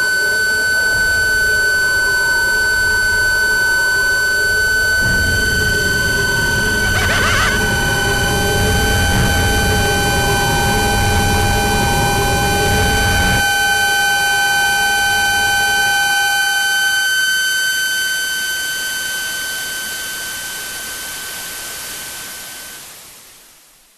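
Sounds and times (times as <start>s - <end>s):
loud low rumble: 4.9s - 13.3s
steady high tones: 6.7s - 8.3s.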